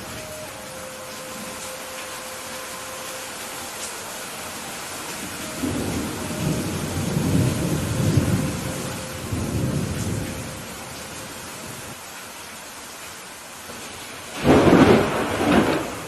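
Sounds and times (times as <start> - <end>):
rain hissing: 0.0 - 16.0
thunder rolling: 5.5 - 10.8, 13.8 - 16.0.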